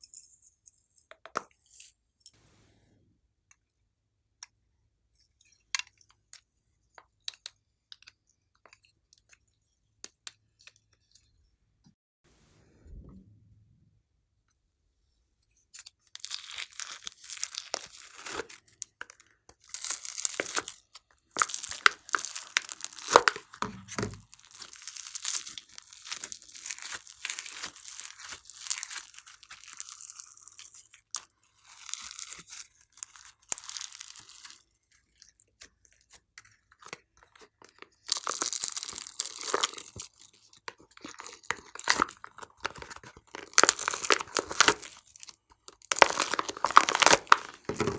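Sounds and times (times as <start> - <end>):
slime crackling and popping: 16.2 - 19.0, 19.6 - 34.6, 38.0 - 40.2, 41.1 - 47.9.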